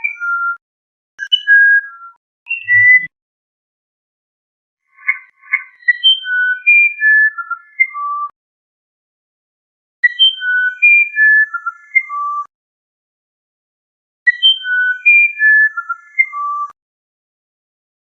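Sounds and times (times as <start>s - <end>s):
songbird whistling: 0.0s - 0.6s, 1.2s - 3.1s, 5.0s - 8.4s, 10.0s - 12.5s, 14.3s - 16.8s.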